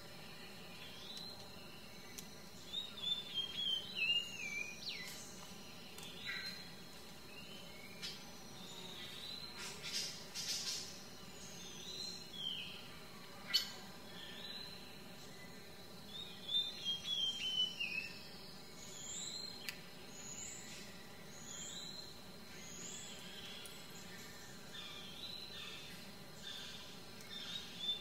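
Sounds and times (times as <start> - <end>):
faint background hiss: 0.0 - 28.0
birds chirping and calling: 7.5 - 12.6.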